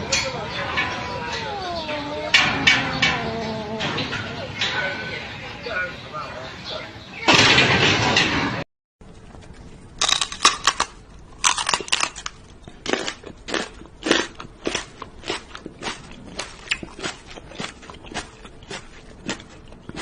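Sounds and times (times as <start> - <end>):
animal chewing crunchily: 9.0 - 20.0.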